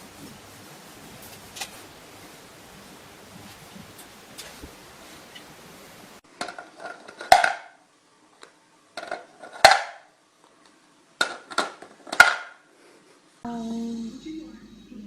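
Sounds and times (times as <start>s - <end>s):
steady hiss: 0.0s - 6.3s.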